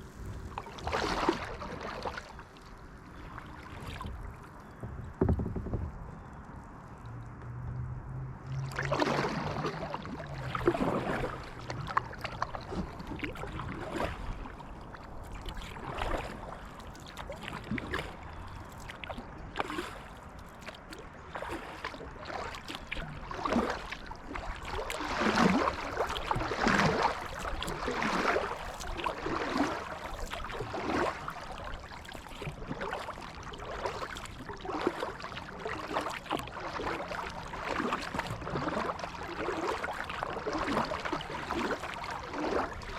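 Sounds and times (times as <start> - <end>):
paddle splashing in water: 0.0 - 7.3, 8.1 - 42.9
water dripping off paddle: 8.5 - 14.1, 14.8 - 42.9.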